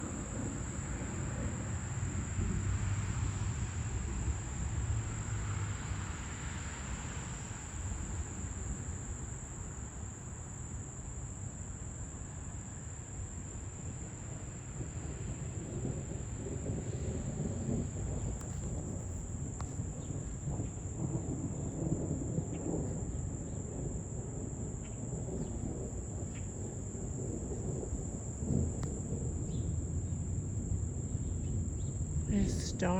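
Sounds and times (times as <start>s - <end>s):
distant thunder rumbling: 0.0s - 9.2s, 14.7s - 32.9s
insects trilling: 15.6s - 32.9s.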